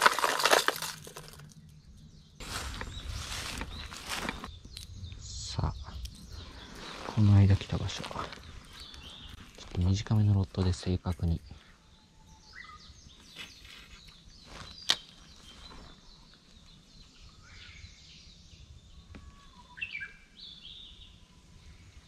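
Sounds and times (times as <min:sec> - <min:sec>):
birds chirping and calling: 0:01.4 - 0:22.0.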